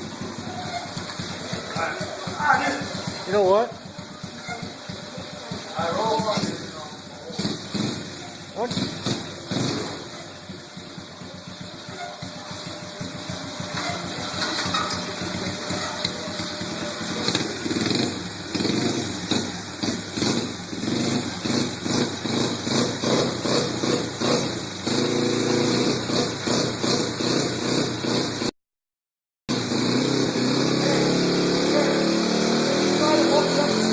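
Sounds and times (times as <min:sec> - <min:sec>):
pit bike engine revving: 0:00.0 - 0:28.5, 0:29.5 - 0:33.9.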